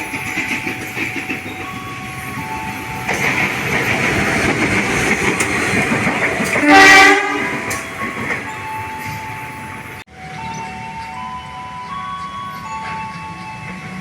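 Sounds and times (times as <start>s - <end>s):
train wheels rumbling on rails: 0.0s - 14.0s
locomotive horn blast: 6.6s - 7.8s.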